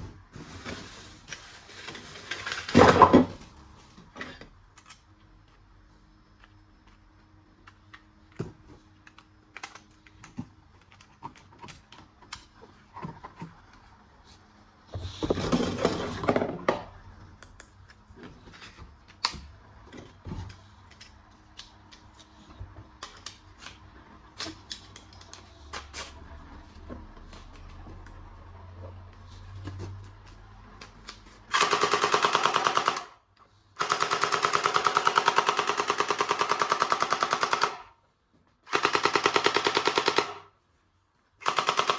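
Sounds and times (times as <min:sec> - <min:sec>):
toy gun clicks and rattles: 0:31.5 - 0:33.2, 0:33.8 - 0:37.9, 0:41.4 - 0:41.9.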